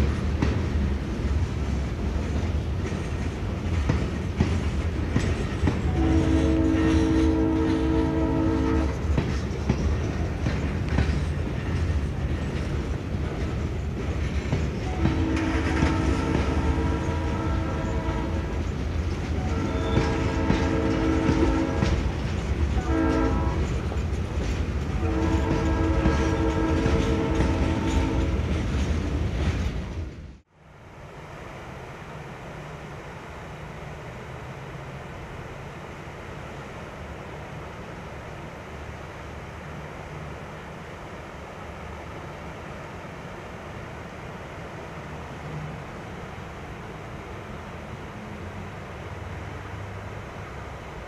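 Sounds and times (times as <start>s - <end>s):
wheels clacking over rail joints: 0.0s - 30.4s
freight train rumbling past: 0.0s - 51.0s
locomotive air horn blasts: 5.9s - 9.0s, 14.9s - 18.5s, 19.4s - 22.0s, 22.8s - 23.7s, 25.0s - 28.5s.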